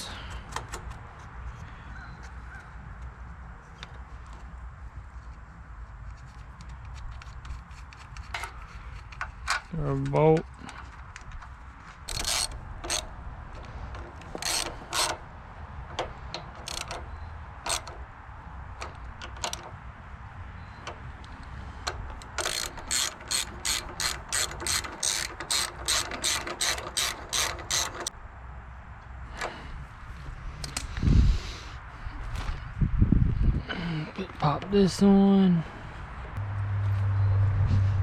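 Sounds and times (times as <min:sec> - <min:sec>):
ratchet wrench clicking: 0:12.1 - 0:15.2, 0:15.9 - 0:18.1, 0:18.8 - 0:19.8, 0:20.8 - 0:28.1.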